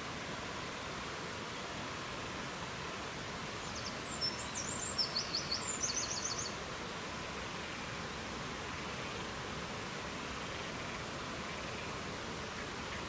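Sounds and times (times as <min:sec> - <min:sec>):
songbird chirping and trilling: 0:03.6 - 0:06.6.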